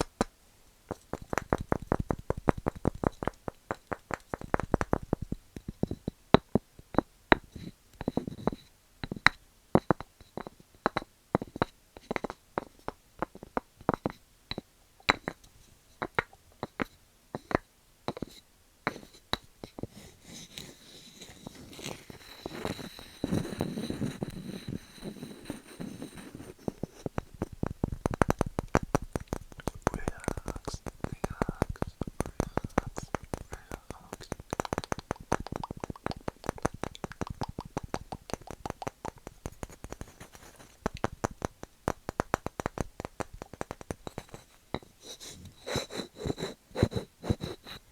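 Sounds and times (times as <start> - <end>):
continuous rubbing noise: 18.2 - 47.9
wooden objects tapping: 26.8 - 44.9.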